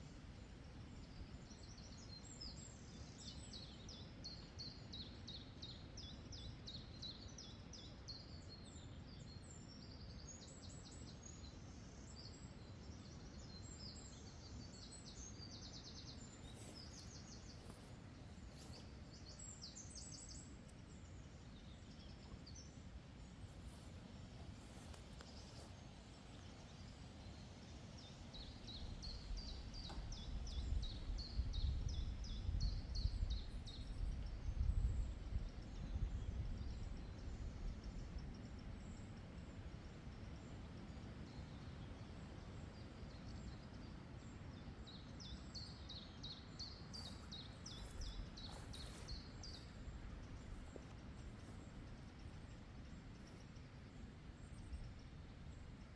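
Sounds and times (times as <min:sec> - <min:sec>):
meadow ambience: 0:14.7 - 0:55.9.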